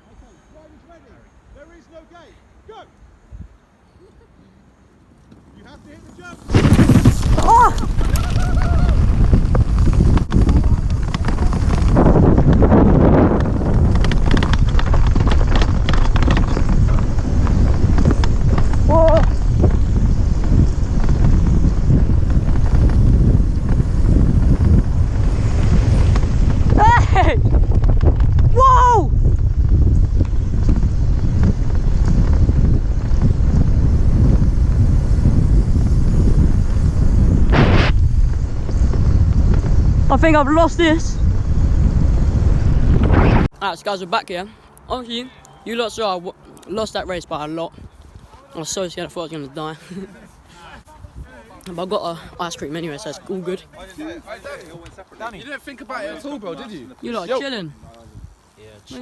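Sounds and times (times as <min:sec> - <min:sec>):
wind buffeting microphone: 0:05.3 - 0:59.0
low rumble: 0:06.3 - 0:43.5.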